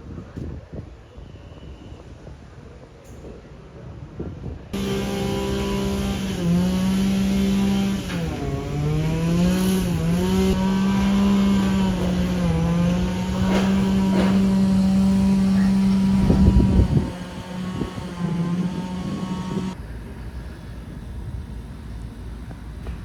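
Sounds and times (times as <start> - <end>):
engine running: 4.7 - 23.0.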